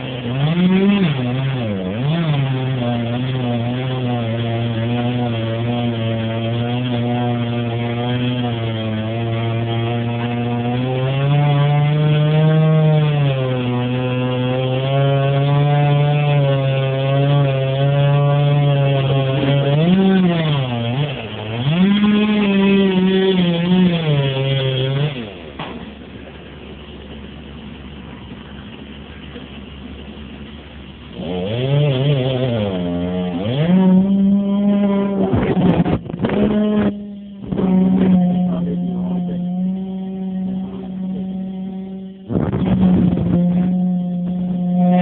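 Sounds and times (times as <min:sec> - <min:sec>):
chainsaw cutting at high revs: 0:00.0 - 0:27.6, 0:30.0 - 0:45.0.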